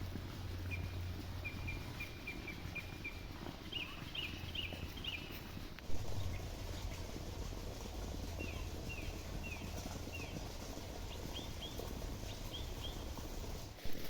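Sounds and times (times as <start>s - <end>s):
steady low rumble: 0.0s - 13.7s
bird chirping: 0.6s - 6.9s, 8.3s - 13.3s.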